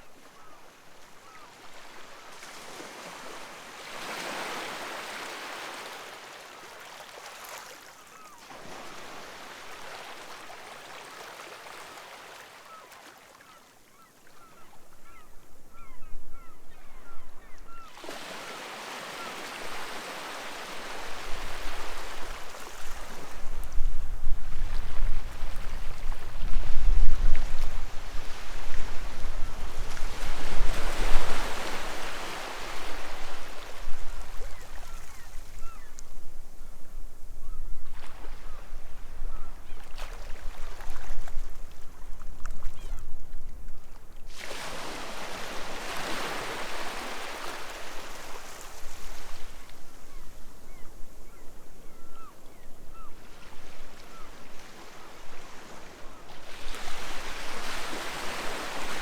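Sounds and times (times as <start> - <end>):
faint gull calls: 0.1 - 1.6, 12.5 - 19.8, 34.4 - 36.8, 37.4 - 39.9, 42.6 - 43.1, 50.0 - 53.4, 54.0 - 55.0
sea waves breaking on beach: 18.0 - 23.7, 24.7 - 35.8, 44.3 - 50.8, 54.1 - 59.0.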